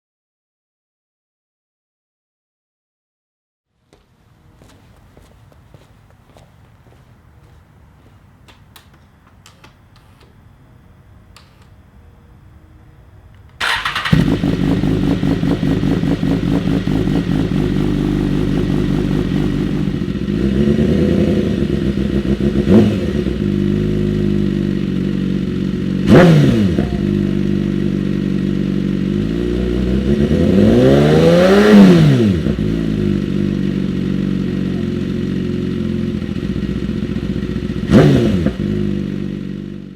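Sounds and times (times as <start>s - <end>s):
motorcycle engine idling: 13.6s - 30.6s, 32.4s - 39.9s
engine revving: 13.6s - 39.8s
motorcycle engine starting: 13.6s - 39.9s.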